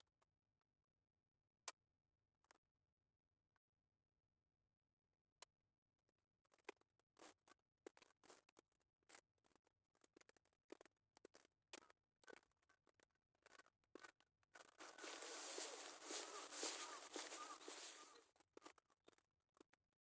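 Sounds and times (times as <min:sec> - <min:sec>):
faint clicks and scrapes: 0:13.4 - 0:18.2.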